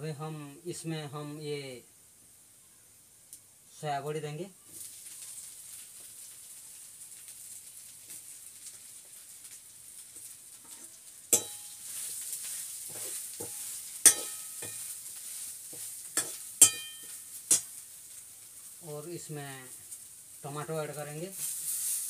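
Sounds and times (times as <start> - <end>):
food sizzling in oil: 3.8 - 22.0
metal spatula clanking on pan: 10.6 - 11.8, 12.9 - 15.0, 15.8 - 17.8.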